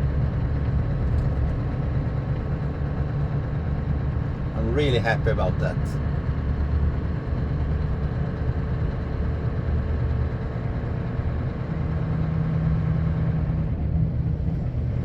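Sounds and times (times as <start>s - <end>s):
truck engine and road rumble: 0.0s - 15.0s
steady engine note: 4.6s - 6.0s.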